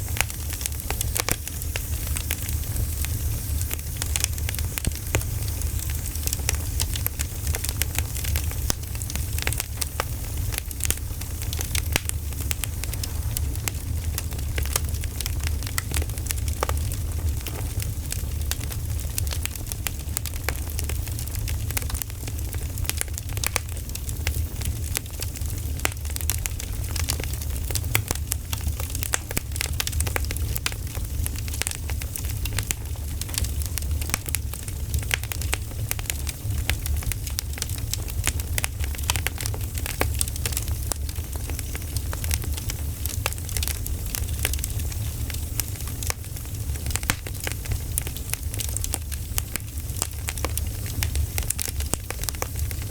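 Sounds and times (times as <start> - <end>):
campfire crackling: 0.0 - 52.9
low rumble: 11.0 - 15.4.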